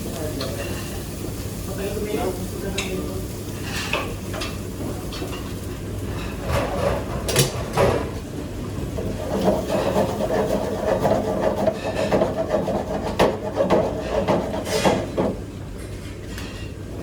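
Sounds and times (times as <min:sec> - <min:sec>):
rubbing and scraping: 0:09.0 - 0:15.1.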